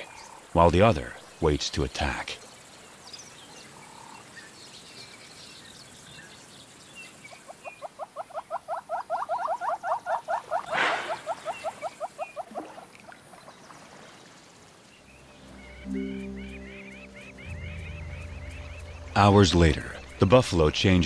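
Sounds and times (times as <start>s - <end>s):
faint high bird chirps: 15.0s - 20.2s.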